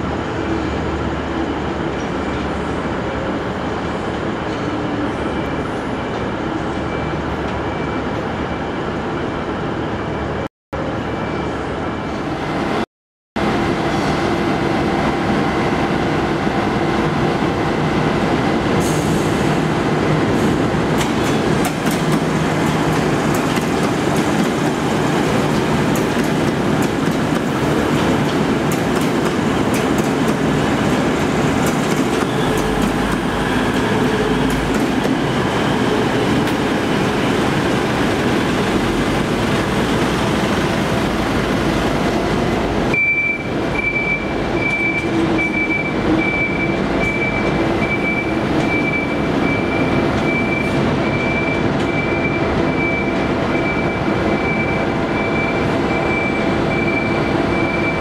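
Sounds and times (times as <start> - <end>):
train wheels running on rails: 13.4 - 58.0.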